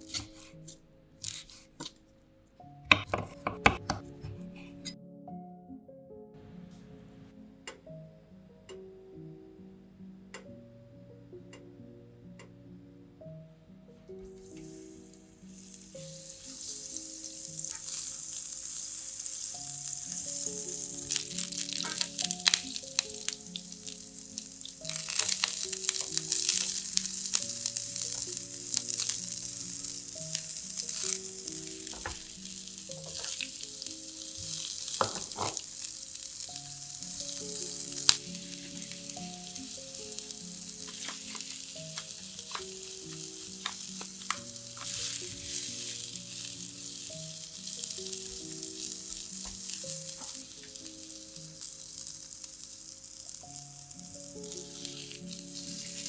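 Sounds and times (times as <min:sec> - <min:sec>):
quiet background music: 0:00.0 - 0:56.0
vegetables sizzling in oil: 0:14.3 - 0:56.0
spatula clicking in pan: 0:20.1 - 0:31.2, 0:40.7 - 0:44.9.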